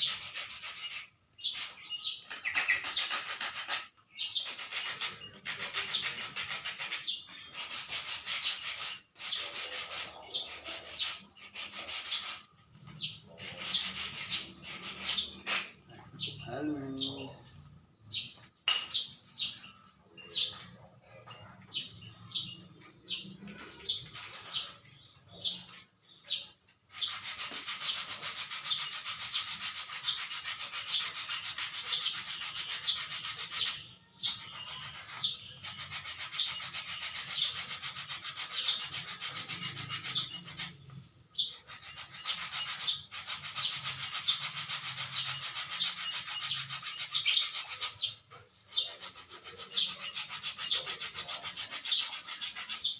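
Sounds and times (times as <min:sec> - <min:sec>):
hand sanding strokes: 0:00.0 - 0:15.9, 0:26.3 - 0:33.8, 0:34.4 - 0:52.9.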